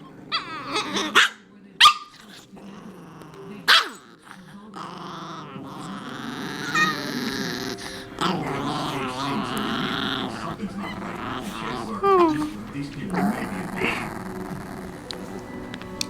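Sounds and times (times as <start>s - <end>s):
puppy grumbling: 0.0s - 1.4s, 2.0s - 16.0s
puppy whining: 0.0s - 1.4s, 2.0s - 16.0s
puppy yipping: 0.0s - 2.2s.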